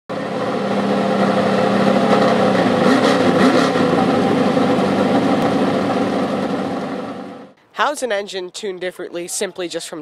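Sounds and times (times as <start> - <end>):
race car engine revving: 0.1 - 7.6.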